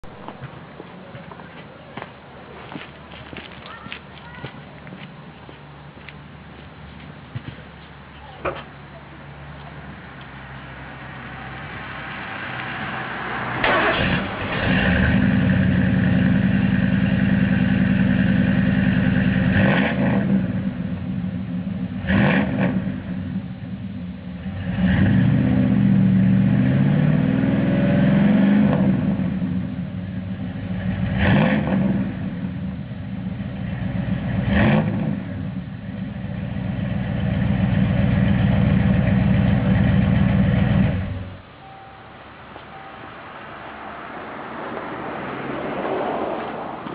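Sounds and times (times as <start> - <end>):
truck engine revving: 10.2 - 21.0, 22.0 - 23.4, 24.4 - 29.7, 30.4 - 41.4.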